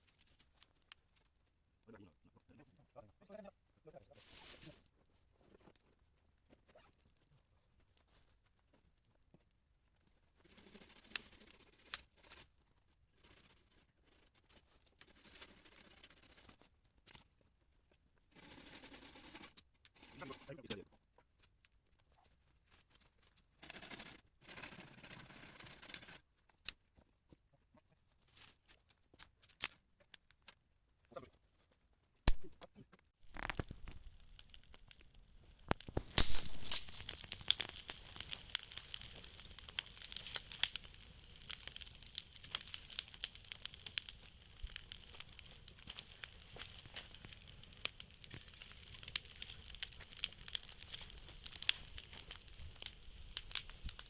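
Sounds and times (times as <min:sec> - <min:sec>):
kindling crinkled and torn: 0:00.0 - 0:01.6, 0:04.2 - 0:17.4, 0:28.1 - 0:54.0
wood fire crackling: 0:00.0 - 0:54.0.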